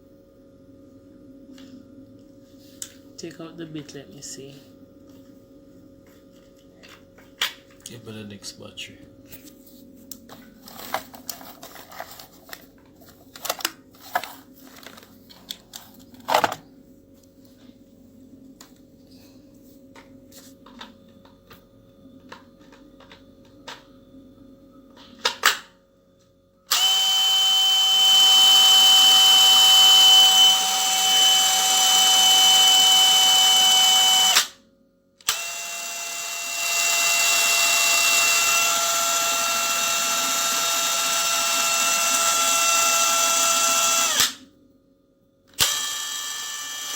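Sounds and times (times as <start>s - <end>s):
drill whining: 26.7s - 34.6s, 35.2s - 44.4s, 45.6s - 46.9s.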